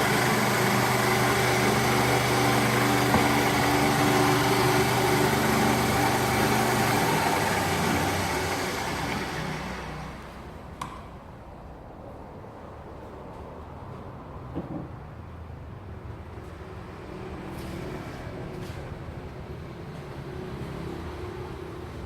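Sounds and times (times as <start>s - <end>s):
bandsaw cutting wood: 0.0s - 10.2s
click: 10.8s - 11.1s.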